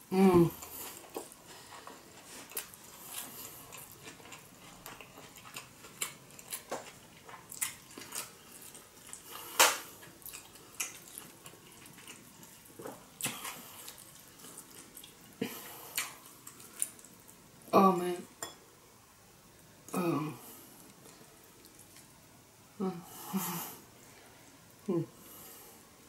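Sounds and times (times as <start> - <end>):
wet chewing: 0.6 - 17.4.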